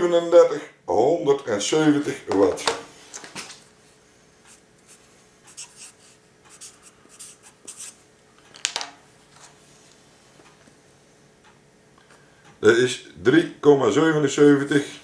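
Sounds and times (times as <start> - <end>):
pen scratching on paper: 4.5 - 8.0.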